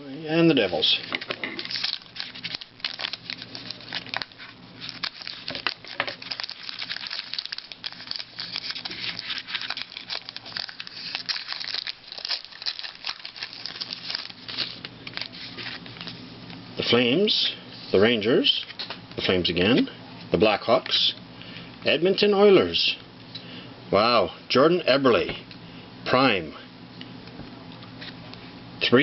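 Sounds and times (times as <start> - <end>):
foil wrapper tearing and crinkling: 1.3 - 16.2.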